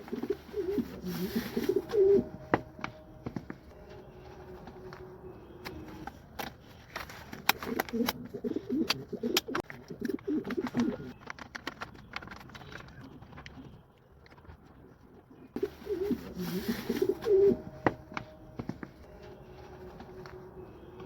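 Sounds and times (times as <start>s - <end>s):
pigeons cooing: 0.0s - 2.9s, 7.5s - 11.1s, 15.2s - 18.2s.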